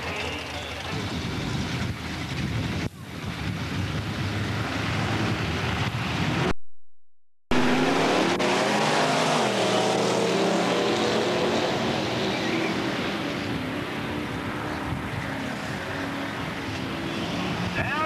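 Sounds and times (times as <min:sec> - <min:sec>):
loud car engine: 0:00.0 - 0:06.7, 0:07.5 - 0:18.0
wind noise: 0:00.9 - 0:06.5.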